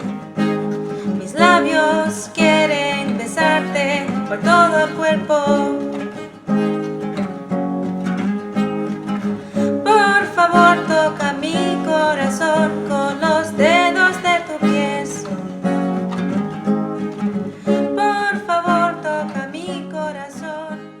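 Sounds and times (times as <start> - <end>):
acoustic guitar strumming: 0.0 - 21.0
woman singing: 1.0 - 6.3, 9.6 - 15.8, 17.7 - 21.0.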